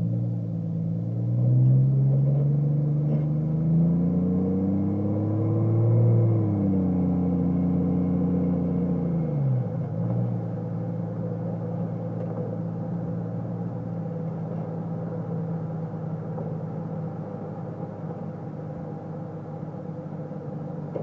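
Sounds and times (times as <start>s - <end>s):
car exhaust idling: 9.6s - 21.0s.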